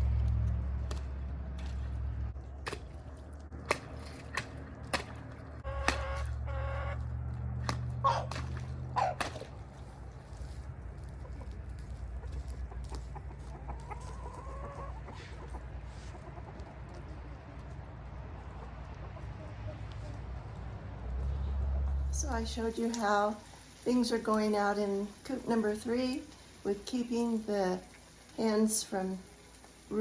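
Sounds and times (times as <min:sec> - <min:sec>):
low rumble: 0:00.0 - 0:13.7, 0:15.4 - 0:22.7
chickens clucking and calling: 0:05.6 - 0:07.1, 0:08.0 - 0:09.4, 0:10.9 - 0:20.5.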